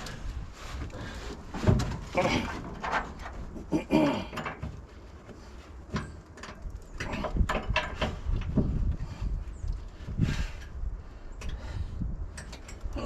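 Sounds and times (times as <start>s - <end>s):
metallic clicks and knocks: 5.9s - 8.7s.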